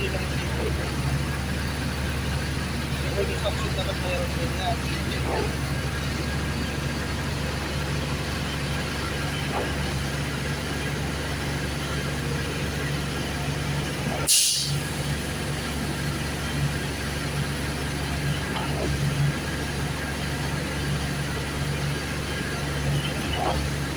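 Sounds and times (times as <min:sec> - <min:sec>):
truck engine running: 0:00.0 - 0:23.9
air release hiss: 0:14.3 - 0:14.9.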